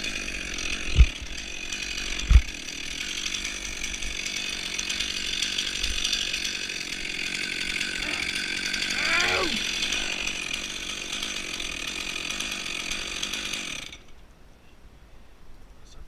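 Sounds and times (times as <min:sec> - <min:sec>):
chainsaw running: 0:00.0 - 0:14.2
dull low thumps: 0:00.9 - 0:01.2.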